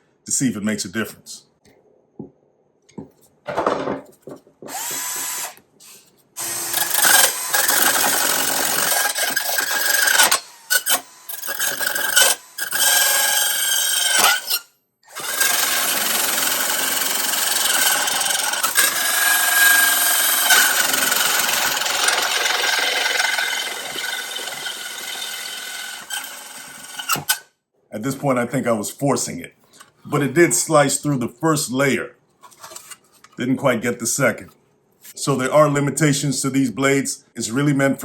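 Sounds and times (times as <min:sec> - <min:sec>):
drill spin-up: 0:04.7 - 0:27.5
saw blade grinding sheet metal: 0:06.4 - 0:27.4.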